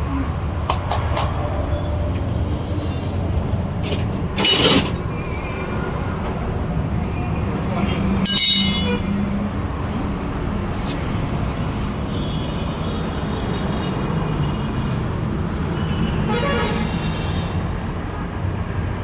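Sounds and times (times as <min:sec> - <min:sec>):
traffic engine rumble: 0:00.0 - 0:19.0
vehicle horns tooting: 0:08.2 - 0:09.6, 0:15.6 - 0:17.8.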